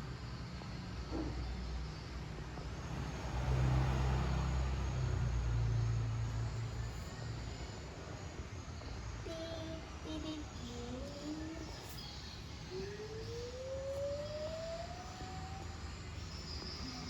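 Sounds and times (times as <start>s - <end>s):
vehicle engine passing by: 2.5s - 7.7s.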